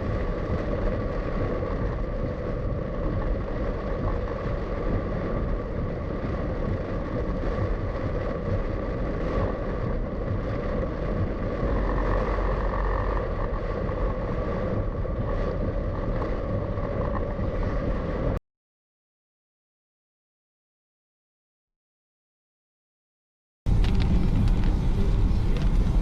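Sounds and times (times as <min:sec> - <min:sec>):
car engine and road noise: 0:00.0 - 0:18.4, 0:23.7 - 0:26.0.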